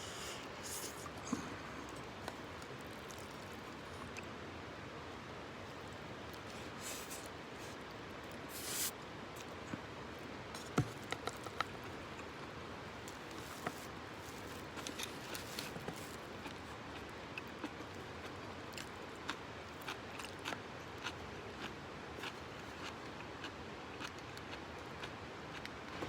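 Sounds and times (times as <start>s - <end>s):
low steady hiss: 0.0s - 19.8s.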